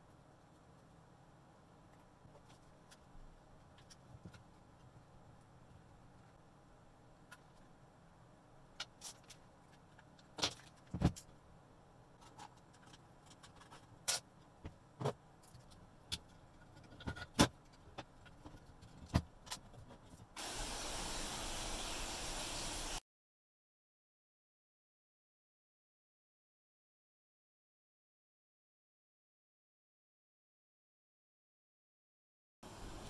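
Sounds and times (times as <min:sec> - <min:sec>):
aerosol spray can hissing: 0:20.4 - 0:23.0.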